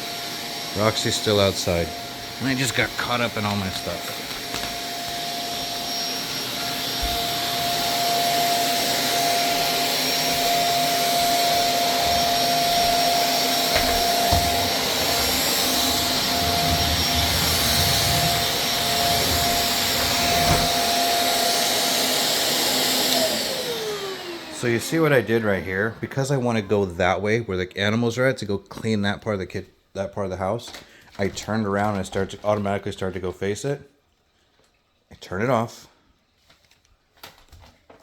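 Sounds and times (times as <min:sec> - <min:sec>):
vacuum cleaner running: 0:00.0 - 0:27.4.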